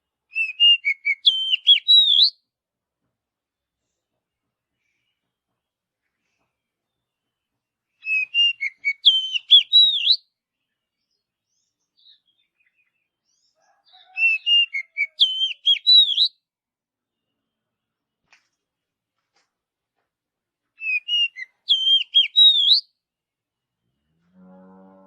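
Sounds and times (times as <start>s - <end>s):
bird singing whistled notes: 0.3s - 2.4s, 8.0s - 10.3s, 14.1s - 16.4s, 20.8s - 23.0s.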